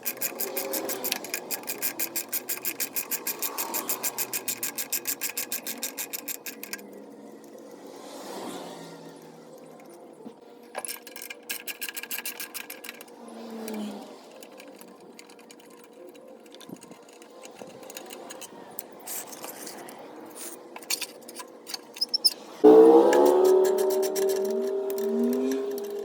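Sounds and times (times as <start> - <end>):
hand tools clicking and knocking: 0.0 - 7.0, 10.6 - 22.4, 23.1 - 26.0
fast mechanical clicks: 0.0 - 7.6, 10.7 - 20.0.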